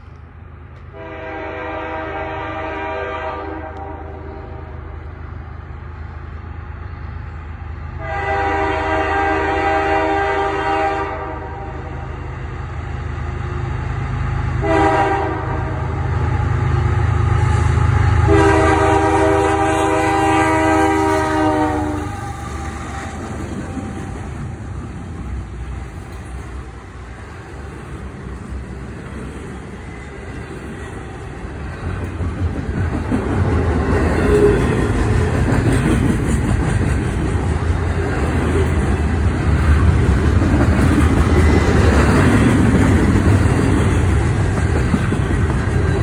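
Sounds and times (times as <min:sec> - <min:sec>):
train wheels on rails: 0:00.0 - 0:46.0
locomotive air horn: 0:00.9 - 0:04.8, 0:08.0 - 0:11.9, 0:14.6 - 0:16.4, 0:17.3 - 0:24.2.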